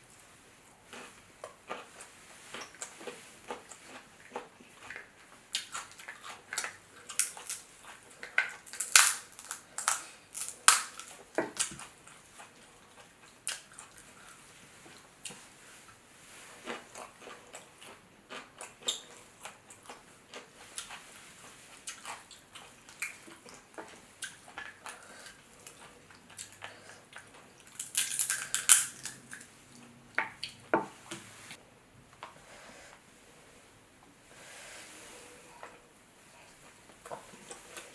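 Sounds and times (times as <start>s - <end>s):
crab shells cracking: 6.6s - 7.6s, 8.2s - 11.8s, 27.7s - 29.5s
shells crunching: 27.8s - 29.2s.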